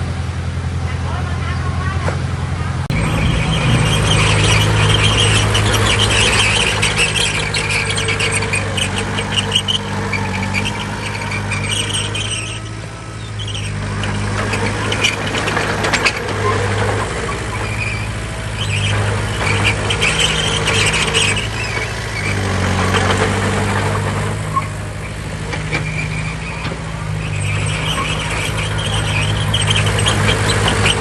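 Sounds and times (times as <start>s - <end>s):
heavy diesel machinery running: 0.0s - 31.0s
high metallic squealing: 2.9s - 31.0s.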